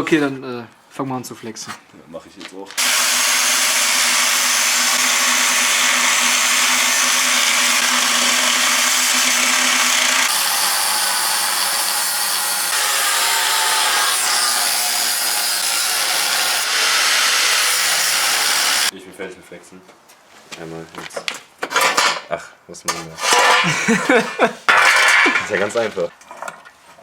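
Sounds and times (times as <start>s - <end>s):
angle grinder cutting metal: 2.8s - 18.9s.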